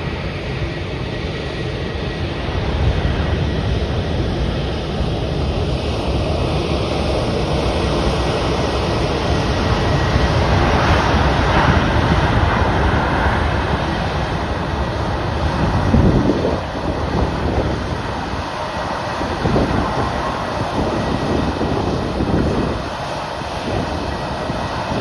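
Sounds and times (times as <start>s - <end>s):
jet engine rumble: 0.0s - 25.0s.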